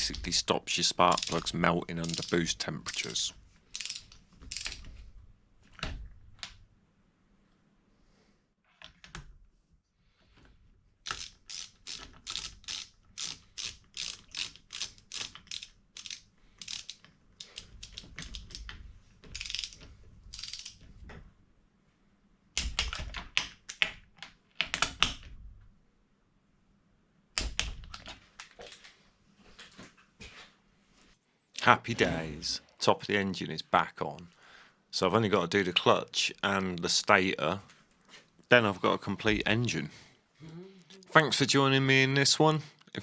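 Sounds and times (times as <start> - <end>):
ratchet wrench clicking: 3.7 - 4.8, 11.1 - 17.0.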